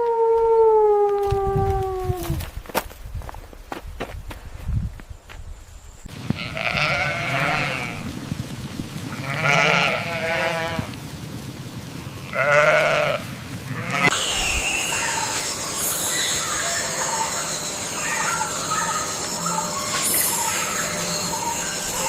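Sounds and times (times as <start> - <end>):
steady hiss: 4.4 - 22.0
livestock bleating: 6.2 - 8.0, 9.1 - 10.9, 12.3 - 14.2.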